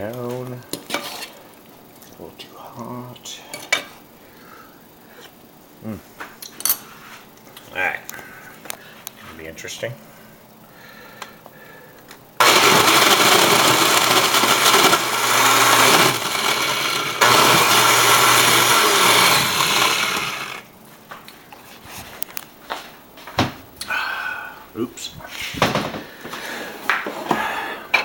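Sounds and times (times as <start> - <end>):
blender crushing ice: 12.4 - 20.7.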